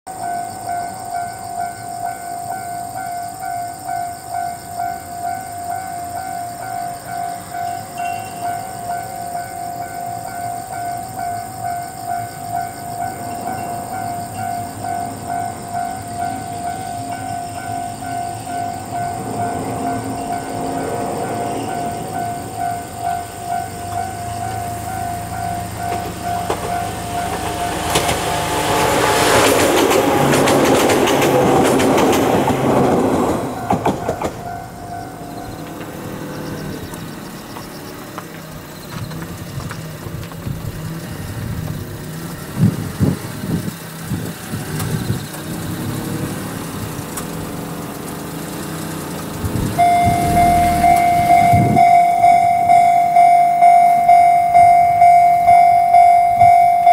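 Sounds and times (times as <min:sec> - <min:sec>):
level crossing bell ringing: 0:00.1 - 0:28.0, 0:49.8 - 0:56.9
loud steady tone: 0:00.1 - 0:30.9, 0:49.4 - 0:56.9
distant train rumble: 0:00.1 - 0:56.9
electric train passing: 0:00.1 - 0:56.9.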